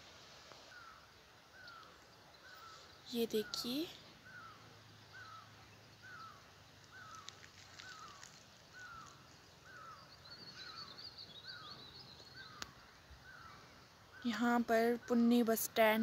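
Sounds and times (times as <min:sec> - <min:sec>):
bird short falling call: 0:06.9 - 0:10.0.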